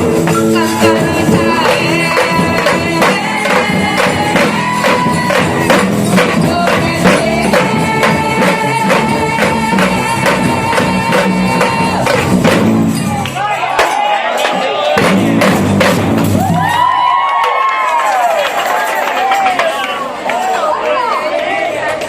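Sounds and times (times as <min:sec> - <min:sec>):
person singing: 0:00.0 - 0:12.3
gospel band playing: 0:00.0 - 0:16.9
fast percussion beat: 0:00.0 - 0:17.0.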